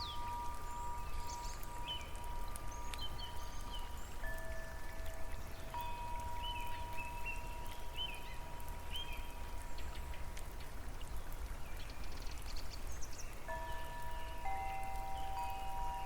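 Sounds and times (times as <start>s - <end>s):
rain and running water: 0.0s - 16.0s
ringing chime tone: 13.5s - 16.0s.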